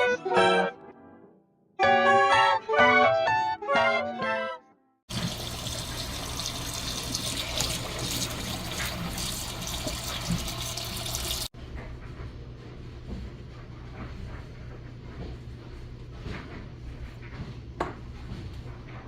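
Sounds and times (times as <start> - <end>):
tap water running: 5.1 - 11.6.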